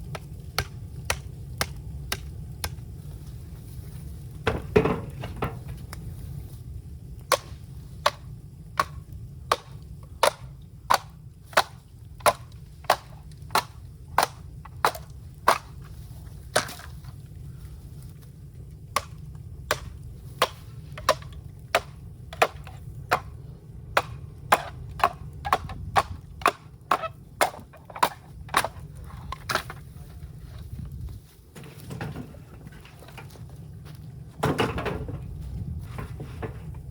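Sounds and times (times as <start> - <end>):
low steady rumble: 0.0 - 36.9
blade chopping bamboo: 7.3 - 15.8, 16.5 - 16.9, 19.0 - 23.3, 23.9 - 28.8.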